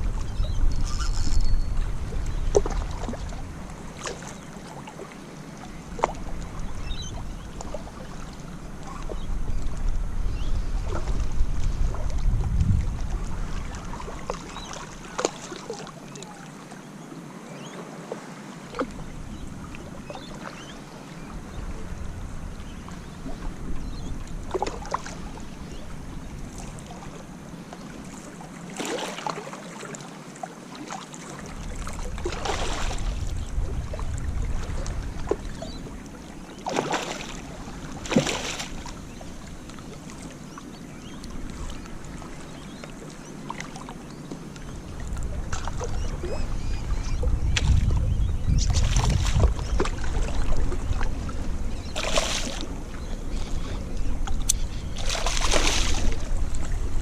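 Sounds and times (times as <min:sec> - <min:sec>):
wind buffeting microphone: 0:00.0 - 0:04.1, 0:08.6 - 0:14.4, 0:21.2 - 0:26.9, 0:31.5 - 0:36.0, 0:44.7 - 0:57.0.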